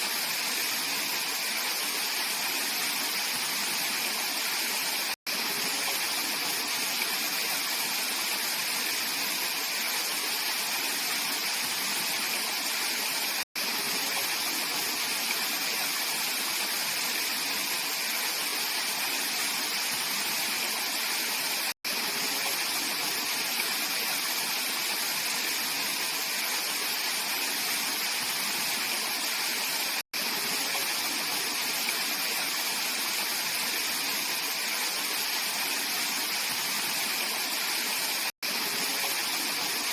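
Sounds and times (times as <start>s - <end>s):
stream splashing over rocks: 0.1s - 39.9s.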